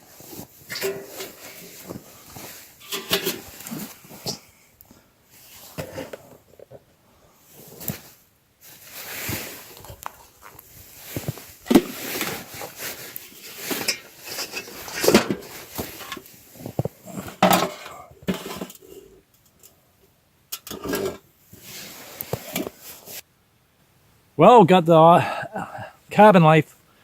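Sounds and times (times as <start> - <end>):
pan and metal utensils clinking: 0.6 - 4.4, 17.2 - 18.8.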